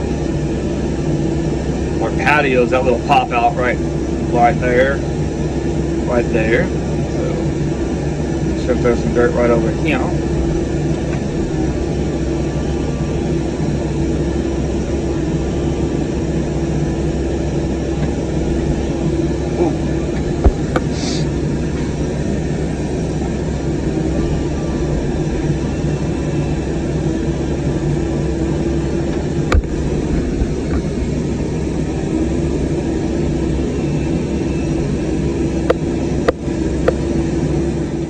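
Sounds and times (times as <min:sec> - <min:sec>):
excavator diesel engine running: 0:00.0 - 0:38.0
sharp knocks: 0:20.4 - 0:21.0.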